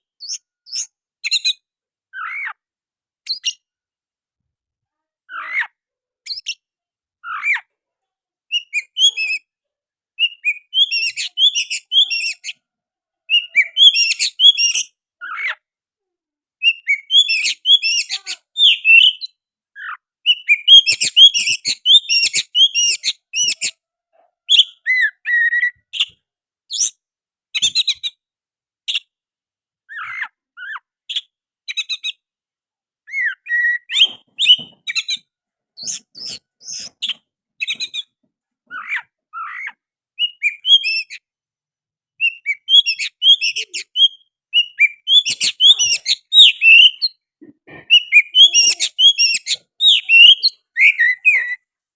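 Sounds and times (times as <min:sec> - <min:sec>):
songbird singing varied phrases: 0:10.2 - 0:12.6, 0:13.3 - 0:15.6, 0:16.6 - 0:23.8, 0:24.5 - 0:27.0, 0:33.0 - 0:38.1, 0:38.7 - 0:41.2, 0:42.2 - 0:47.2, 0:47.8 - 0:51.7.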